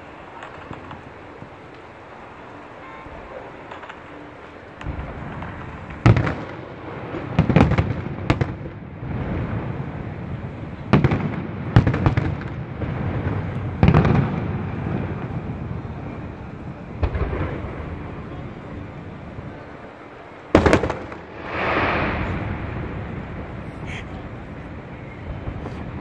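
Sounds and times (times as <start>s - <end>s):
rolling rumble: 3.4s - 26.0s
firework shells bursting: 20.5s - 23.0s.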